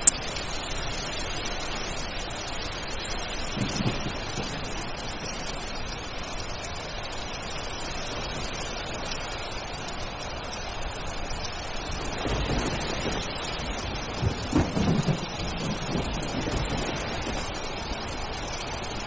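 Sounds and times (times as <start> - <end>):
heavy rain: 0.0 - 19.0
low rumble of thunder: 2.9 - 9.2, 10.7 - 19.0.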